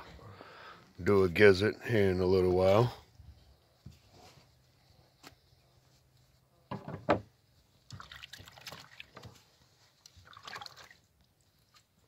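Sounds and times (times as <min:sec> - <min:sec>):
wet squelching of chicken innards: 0:07.9 - 0:09.3, 0:10.0 - 0:11.1.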